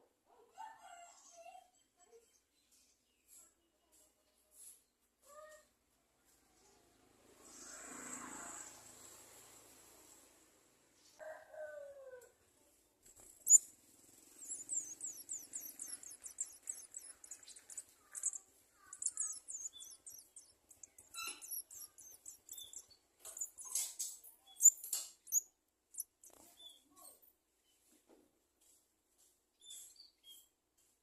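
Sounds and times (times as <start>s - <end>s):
sunbirds chirping: 13.2s - 26.9s.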